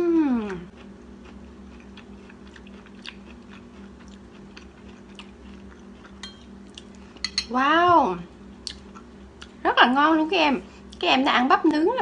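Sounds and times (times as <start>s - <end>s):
woman humming mmm: 0.0s - 0.7s
low steady hum: 0.0s - 12.0s
woman chewing: 0.2s - 7.2s.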